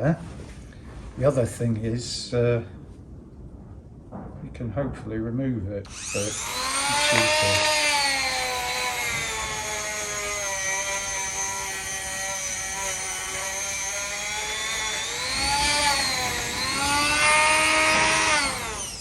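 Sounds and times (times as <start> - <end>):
power tool wire brush whining: 5.9 - 19.0.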